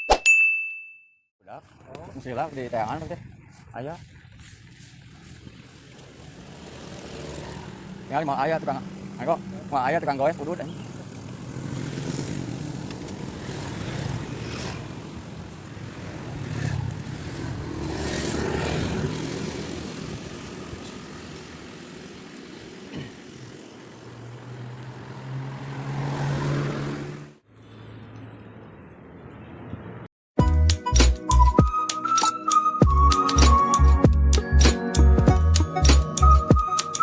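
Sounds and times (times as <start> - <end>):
vehicle engines passing: 1.5 - 30.1.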